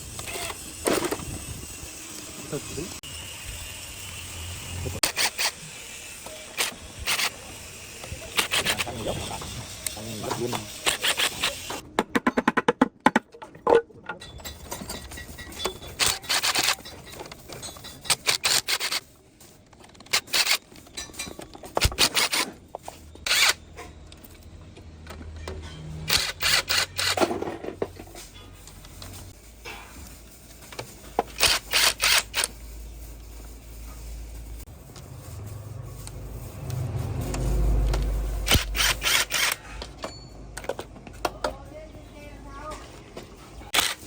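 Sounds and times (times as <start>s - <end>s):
ratchet wrench clicking: 3.4s - 9.0s, 10.8s - 11.8s, 15.4s - 19.1s, 20.1s - 20.7s, 23.2s - 23.6s, 26.1s - 27.2s, 31.4s - 32.6s, 36.0s - 39.7s.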